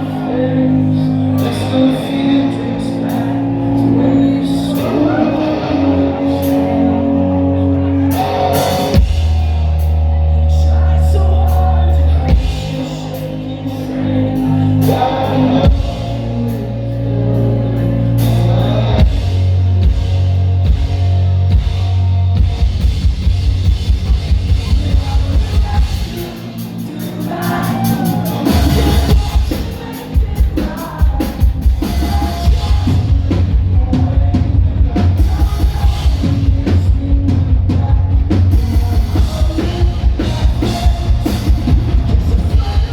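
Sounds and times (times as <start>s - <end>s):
person singing: 0.0s - 22.3s, 24.2s - 42.9s
live rock band playing: 0.0s - 42.9s
fast pounding drum beat: 28.3s - 42.9s.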